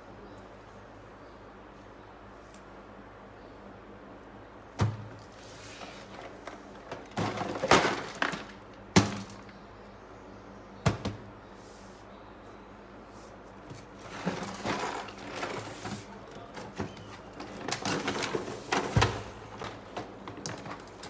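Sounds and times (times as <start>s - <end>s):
handling noise of objects: 4.7s - 9.7s, 13.0s - 21.0s
rustling and scraping: 5.0s - 9.6s, 12.9s - 21.0s.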